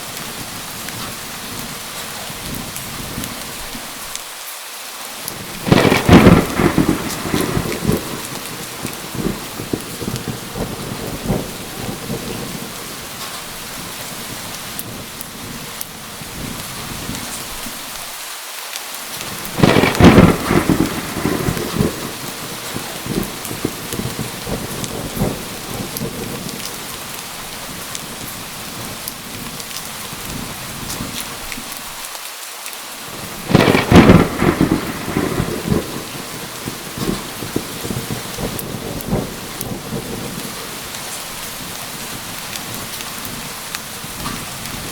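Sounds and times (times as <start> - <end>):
steady rain: 0.0 - 44.9
thunder claps: 5.3 - 15.7, 19.2 - 31.2, 33.1 - 44.9.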